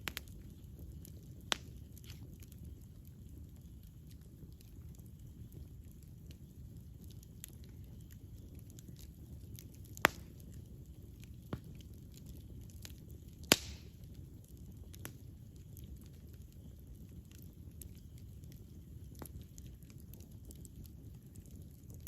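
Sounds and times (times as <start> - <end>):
low rumble of fire: 0.0 - 22.0
small fire crackles: 0.0 - 22.0
loud sharp fire pops: 9.6 - 10.5, 13.4 - 14.1.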